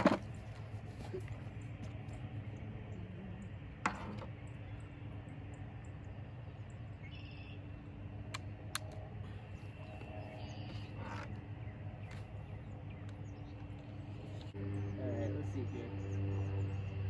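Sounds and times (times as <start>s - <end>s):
steady low hum: 0.0s - 17.0s
sharp clicks: 8.3s - 9.1s.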